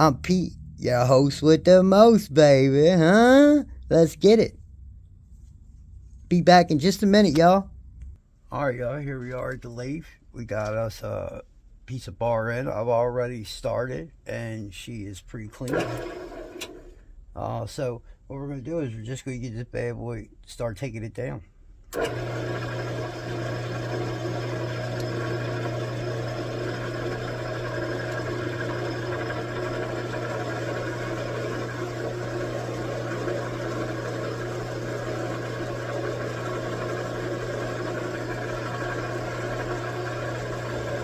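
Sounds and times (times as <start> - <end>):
metal lathe humming: 15.7 - 16.9, 22.0 - 41.0.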